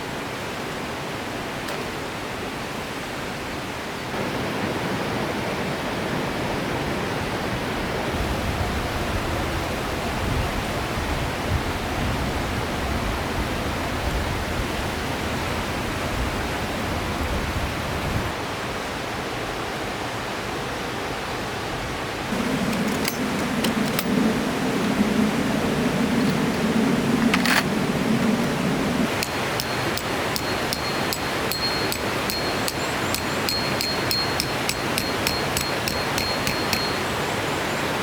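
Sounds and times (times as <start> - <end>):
river water flowing: 22.0 - 38.0.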